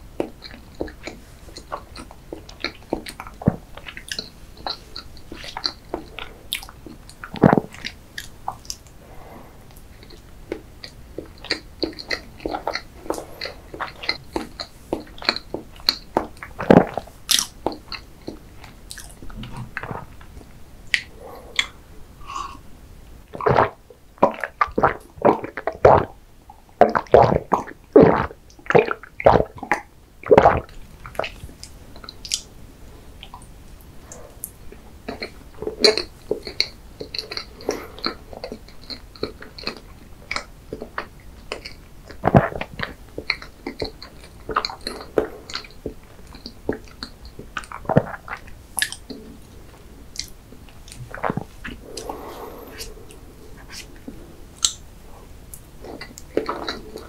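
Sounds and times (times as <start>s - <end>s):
wet chewing and lip smacks: 0.2s - 9.0s, 9.7s - 22.7s, 26.9s - 32.5s, 33.2s - 57.0s
loud gulps of a drink: 3.4s - 26.2s, 26.8s - 31.4s, 41.6s - 57.0s.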